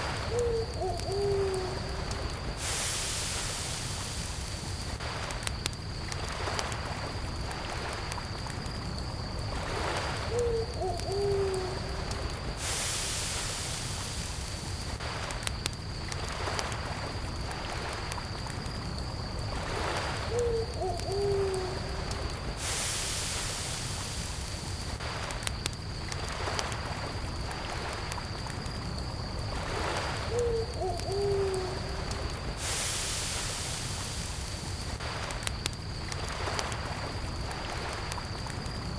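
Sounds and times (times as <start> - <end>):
campfire crackling: 0.0 - 38.9
crickets trilling: 0.0 - 38.9
lake waves washing in: 0.0 - 38.9
owl hooting: 0.3 - 1.9, 10.3 - 11.9, 20.3 - 21.8, 30.3 - 31.9.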